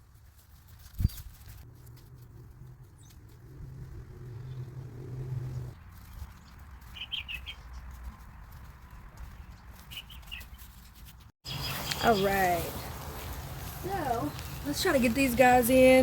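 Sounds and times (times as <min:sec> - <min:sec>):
bird chirping: 0:02.0 - 0:12.9, 0:14.0 - 0:15.6.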